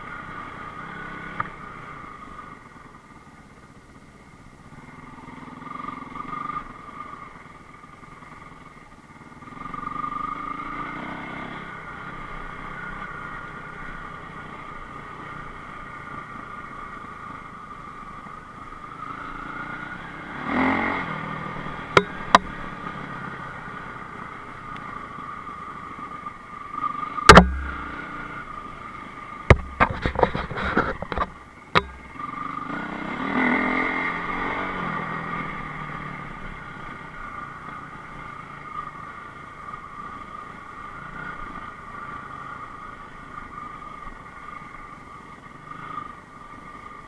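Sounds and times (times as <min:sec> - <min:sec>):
motorcycle engine revving: 0:08.4 - 0:40.2
sharp knocks and thumps: 0:27.3 - 0:28.0, 0:29.5 - 0:32.1.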